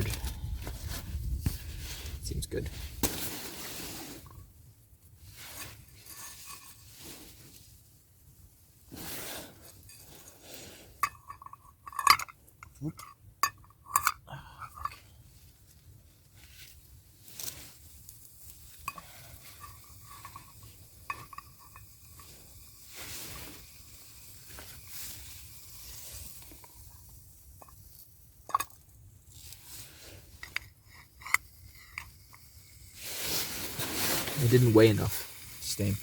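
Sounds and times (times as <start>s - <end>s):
utensil scraping metal pan: 18.9s - 23.5s.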